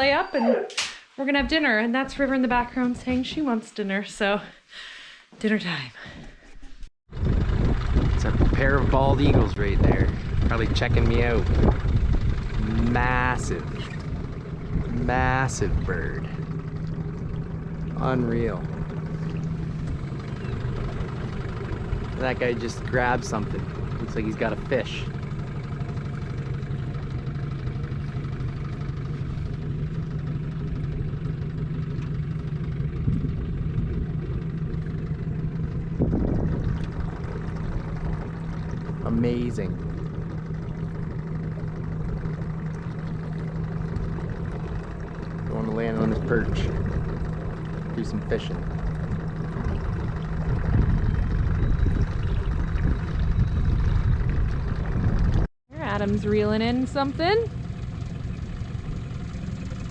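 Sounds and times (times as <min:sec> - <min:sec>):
outboard motor running: 0:00.0 - 0:03.6, 0:05.5 - 0:59.9
wind buffeting microphone: 0:07.1 - 0:25.6, 0:32.8 - 0:57.5.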